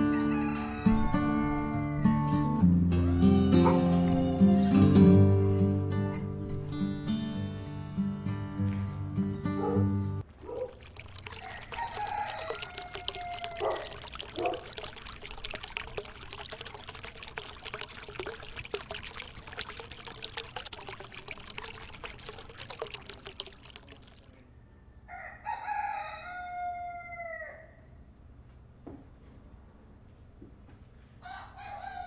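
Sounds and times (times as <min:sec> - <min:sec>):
rooster crowing: 0:00.0 - 0:04.9, 0:11.3 - 0:14.6, 0:24.7 - 0:27.9, 0:31.2 - 0:32.0
water pouring and splashing: 0:10.2 - 0:24.4.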